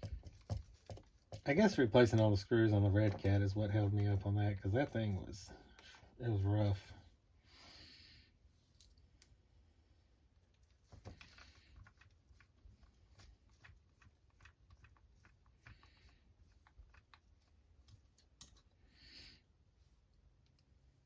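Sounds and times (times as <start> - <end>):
small parts and tools clicking: 8.7 - 9.4, 10.5 - 18.8, 20.1 - 20.8.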